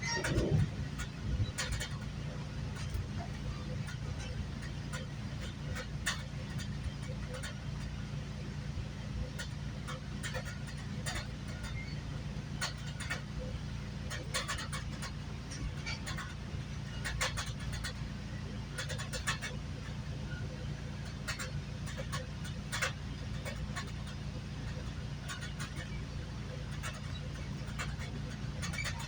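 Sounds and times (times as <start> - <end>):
sharp clicks and rattles: 0.0 - 29.0
train rumbling: 0.0 - 29.0.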